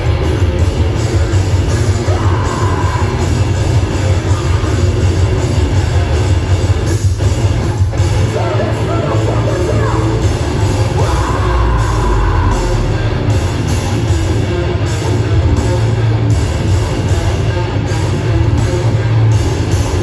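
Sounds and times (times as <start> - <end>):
distorted electric guitars: 0.0 - 20.0
drum kit: 0.0 - 20.0.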